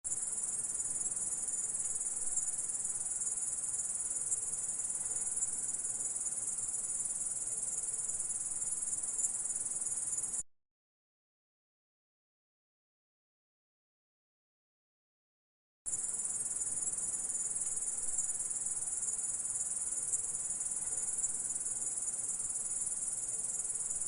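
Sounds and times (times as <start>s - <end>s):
insect high-pitched trill: 0.1s - 10.4s, 15.9s - 24.0s.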